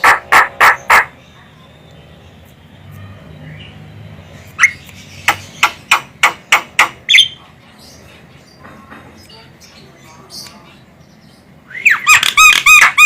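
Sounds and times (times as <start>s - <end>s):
myna bird harsh calls: 0.0s - 1.5s, 11.8s - 13.0s.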